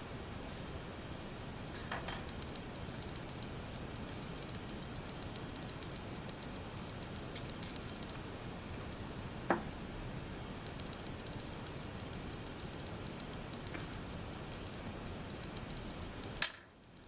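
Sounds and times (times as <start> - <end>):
mouse scroll wheel ticks: 2.3 - 8.2, 10.6 - 17.0.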